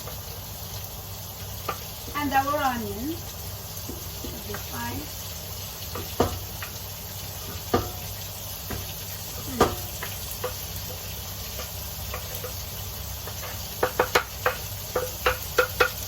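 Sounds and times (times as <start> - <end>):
vegetables sizzling in a hot pan: 0.0 - 16.0
utensil knocking against a pan: 5.9 - 6.8, 7.6 - 11.0, 13.2 - 16.0.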